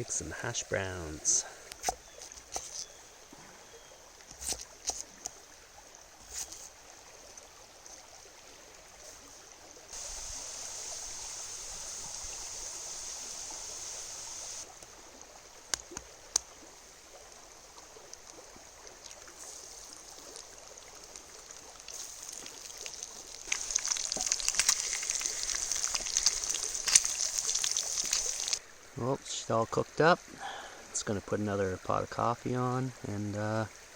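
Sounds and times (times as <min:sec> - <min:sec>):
food sizzling with crackles: 0:09.9 - 0:14.7, 0:19.4 - 0:28.6.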